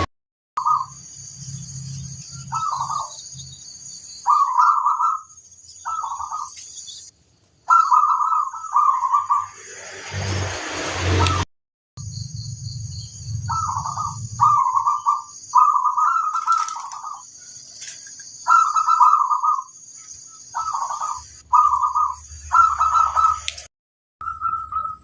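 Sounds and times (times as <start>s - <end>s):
dove cooing: 2.5s - 3.2s, 4.3s - 6.6s, 7.7s - 9.5s, 13.5s - 17.3s, 18.5s - 19.7s, 20.5s - 23.5s.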